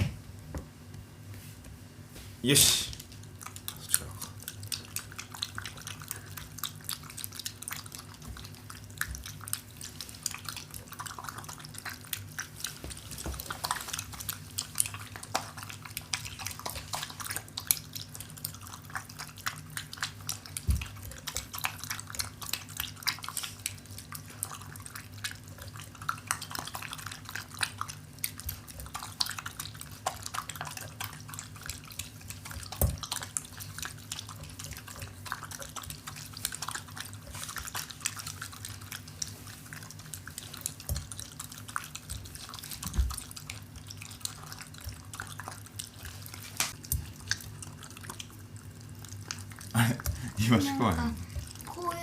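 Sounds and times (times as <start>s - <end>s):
steady low hum: 0.0s - 52.0s
dog eating wet smacking chewing: 3.0s - 52.0s.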